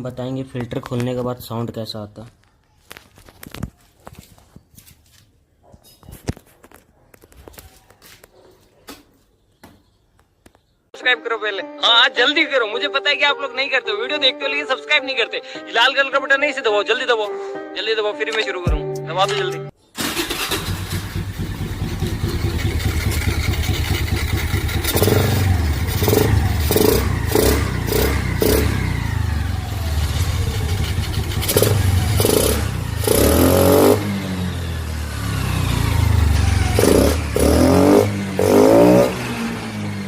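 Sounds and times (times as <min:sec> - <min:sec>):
scooter engine idling and revving: 0:20.0 - 0:40.0.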